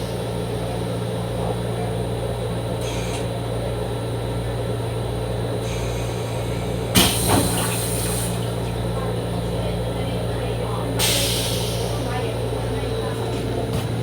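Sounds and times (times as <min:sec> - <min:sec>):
hiss: 0:11.0 - 0:12.0.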